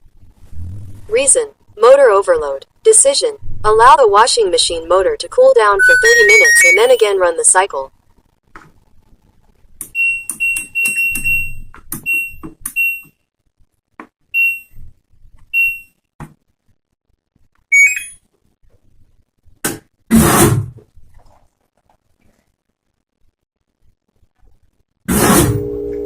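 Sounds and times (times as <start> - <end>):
short high electronic beeps: 5.8 - 7.0, 17.7 - 18.2.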